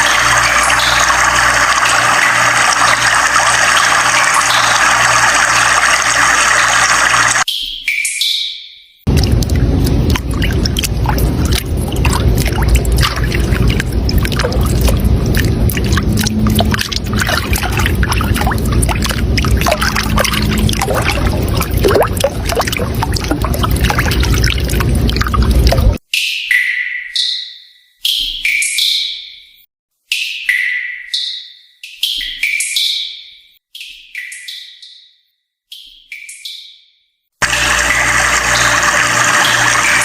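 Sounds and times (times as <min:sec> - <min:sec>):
running water splashing: 0:00.0 - 0:07.4, 0:09.1 - 0:26.0, 0:37.4 - 0:40.0.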